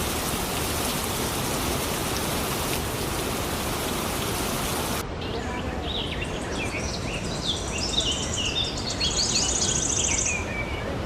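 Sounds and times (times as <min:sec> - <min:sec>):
waterfall rushing: 0:00.0 - 0:05.0.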